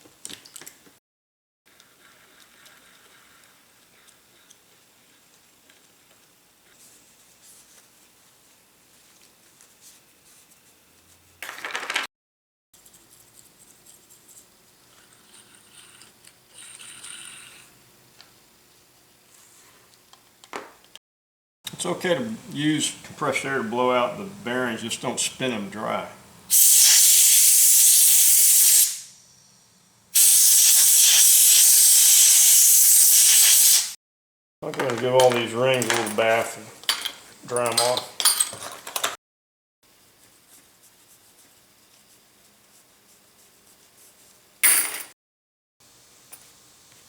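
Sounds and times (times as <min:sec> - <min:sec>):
loud burst of hiss: 0:26.5 - 0:29.2, 0:30.2 - 0:34.0.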